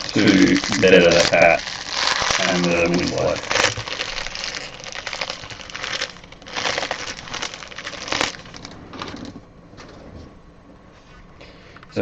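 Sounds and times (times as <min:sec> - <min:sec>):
card pack wrappers crinkling: 0:00.0 - 0:09.4.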